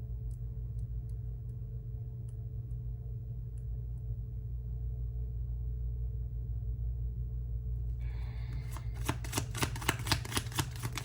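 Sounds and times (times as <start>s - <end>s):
steady low hum: 0.0s - 11.0s
crisp clicks and slaps: 8.7s - 11.0s.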